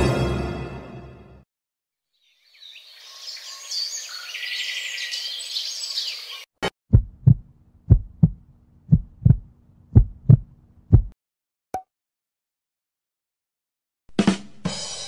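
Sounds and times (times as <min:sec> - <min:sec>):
birds chirping: 0:02.2 - 0:06.5
heartbeat thumps: 0:06.9 - 0:11.2.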